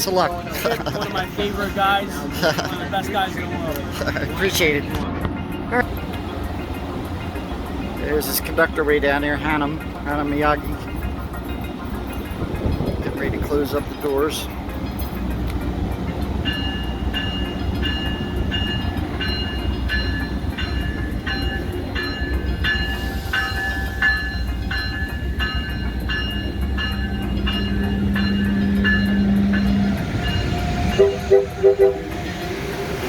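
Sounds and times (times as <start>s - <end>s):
standing train rumble: 0.0s - 33.0s
loud horn blasts: 31.0s - 32.2s.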